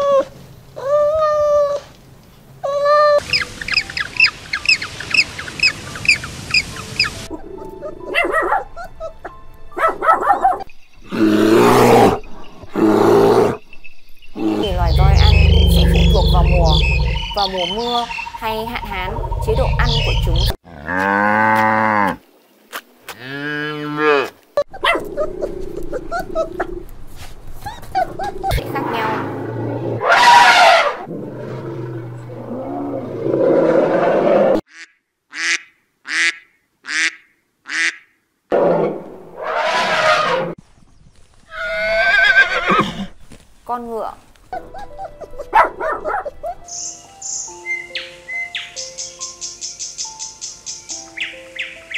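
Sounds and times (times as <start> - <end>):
animal calls: 14.4 - 20.6
loud drawn-out animal calls: 28.3 - 40.6.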